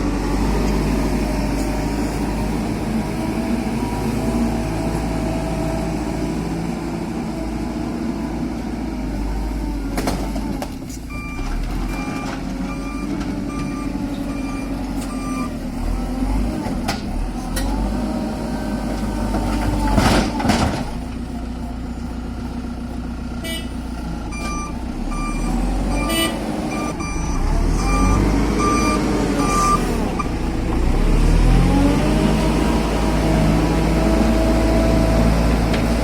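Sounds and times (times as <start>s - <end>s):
diesel engine revving: 0.0s - 36.0s
reversing alarm beeping: 11.1s - 15.7s, 23.4s - 30.4s.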